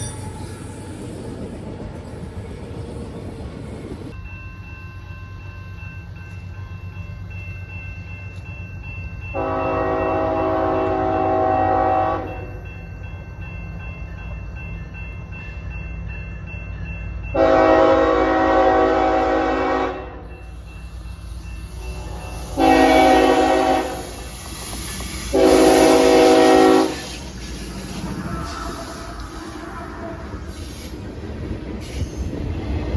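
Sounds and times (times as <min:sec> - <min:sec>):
low rumble of train: 0:00.0 - 0:32.9
locomotive air horn blasts: 0:09.4 - 0:12.5, 0:17.4 - 0:20.2, 0:22.0 - 0:24.4, 0:25.2 - 0:27.3.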